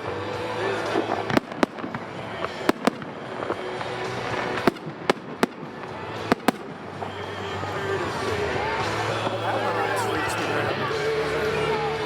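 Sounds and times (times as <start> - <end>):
fireworks bangs: 0.0 - 7.8
music playing: 0.0 - 12.0.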